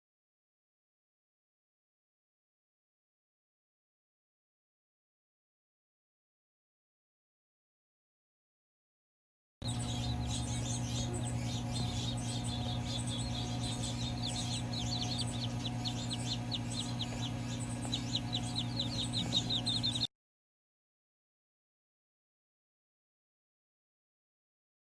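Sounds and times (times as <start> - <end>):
baby birds chirping: 9.6 - 20.1
low electrical hum: 9.6 - 20.1.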